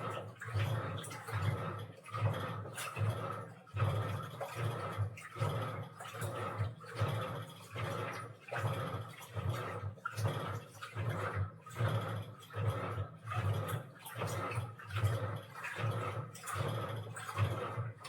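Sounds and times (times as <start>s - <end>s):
washing machine water sloshing: 0.0s - 18.0s.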